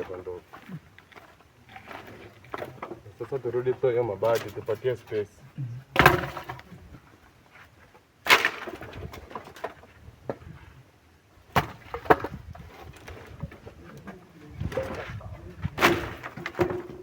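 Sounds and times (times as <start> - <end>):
firewood knocking together: 0.0 - 4.8, 6.0 - 7.0, 11.5 - 17.0.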